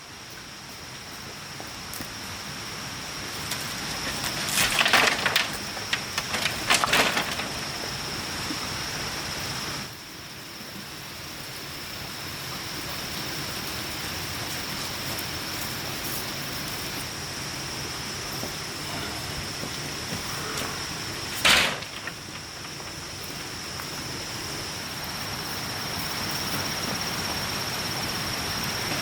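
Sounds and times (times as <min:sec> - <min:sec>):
high-pitched hiss: 0:00.0 - 0:29.0
wood crackling and snapping: 0:03.4 - 0:08.1, 0:21.2 - 0:24.0.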